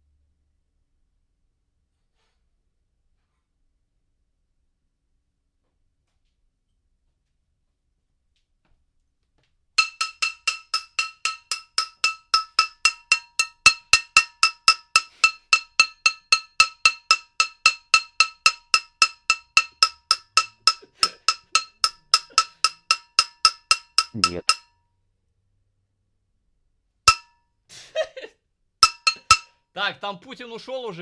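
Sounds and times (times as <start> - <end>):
metal cooking pot banging: 9.8 - 24.7, 27.1 - 27.3, 28.8 - 29.5.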